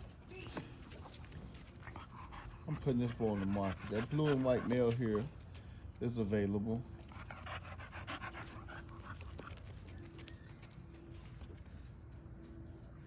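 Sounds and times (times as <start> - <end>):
insects chirring: 0.0 - 13.0
dog panting quickly: 0.8 - 5.4, 7.0 - 10.3.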